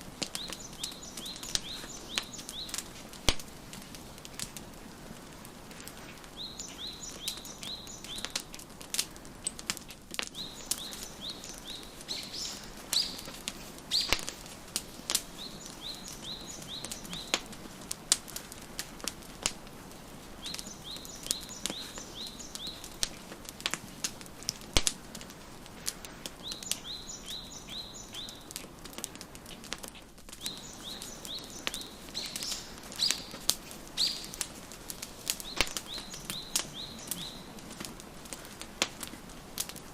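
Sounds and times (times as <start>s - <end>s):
wood fire crackling and popping: 0.0s - 39.9s
high bird chirps: 10.4s - 13.3s, 15.3s - 17.4s, 26.4s - 28.5s, 30.4s - 33.4s, 34.0s - 34.4s, 35.4s - 37.5s.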